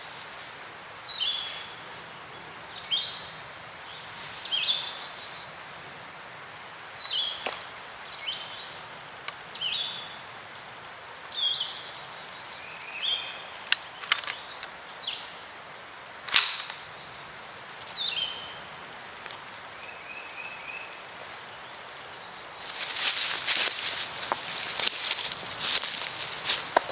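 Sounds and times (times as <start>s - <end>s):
sharp clicks or snaps: 16.3s - 16.8s
loud rustling: 22.6s - 26.9s.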